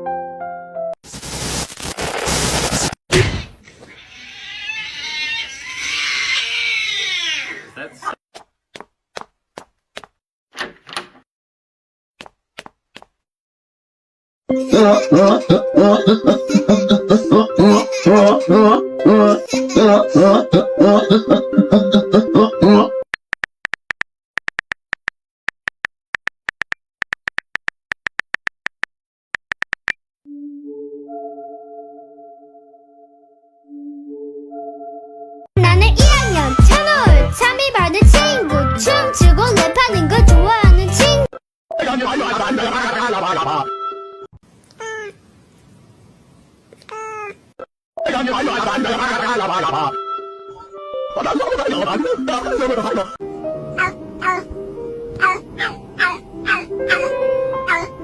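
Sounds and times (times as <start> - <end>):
burst of noise: 1.1 - 3.6
sharp loud thump: 3.1 - 3.6
cat meowing: 3.7 - 7.8, 53.8 - 54.4, 55.2 - 57.1, 57.7 - 57.9.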